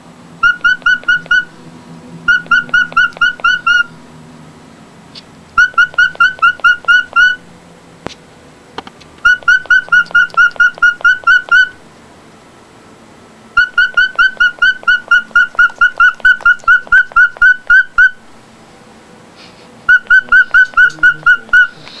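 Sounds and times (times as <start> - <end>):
bird whistled chirps: 0.4 - 1.6, 2.3 - 4.0, 5.6 - 7.4, 9.2 - 11.8, 13.6 - 18.2, 19.9 - 21.9.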